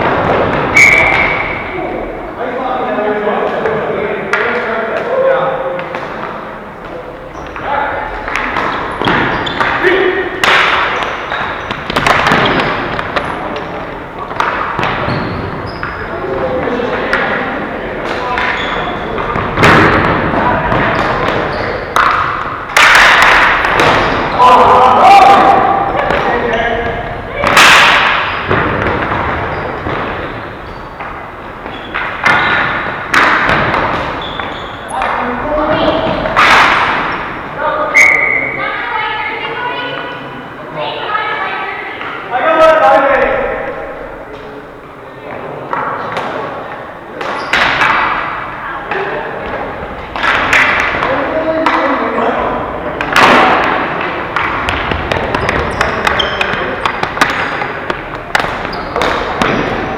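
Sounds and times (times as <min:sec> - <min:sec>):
ball and sticks hitting boards: 0:05.8 - 0:17.4, 0:18.0 - 0:37.4, 0:47.2 - 0:52.1, 0:52.9 - 0:59.9.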